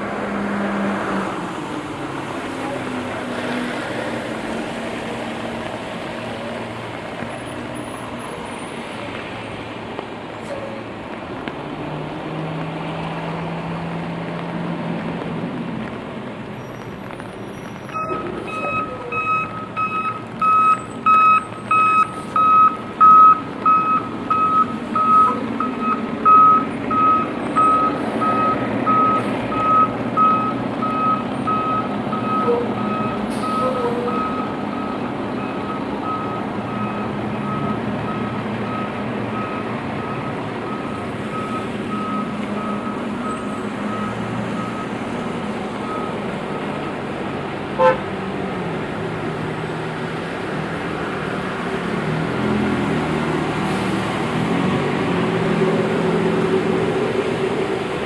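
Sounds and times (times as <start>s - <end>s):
traffic: 0.0s - 58.0s
reversing alarm beeping: 17.9s - 45.0s.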